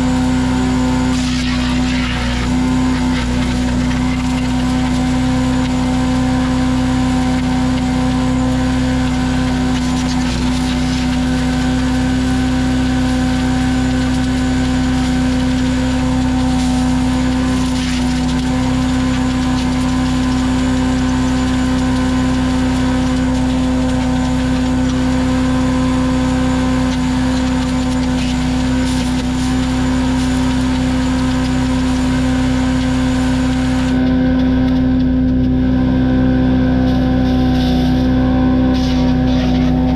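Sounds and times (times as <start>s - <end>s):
small gasoline engine running: 0.0s - 39.9s.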